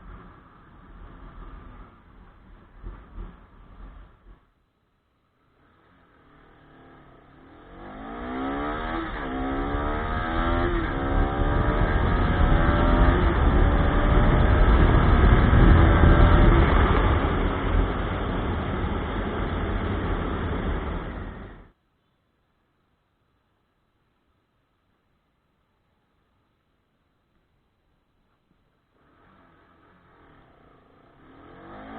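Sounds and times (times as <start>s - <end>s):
motorcycle engine accelerating: 0.0s - 4.5s, 5.5s - 21.7s, 28.9s - 31.9s.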